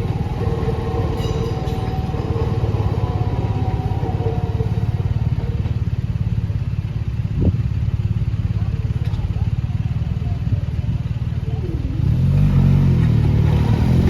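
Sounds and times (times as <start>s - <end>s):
faint steady tones: 0.0s - 7.0s
vehicle engine idling: 0.0s - 14.0s.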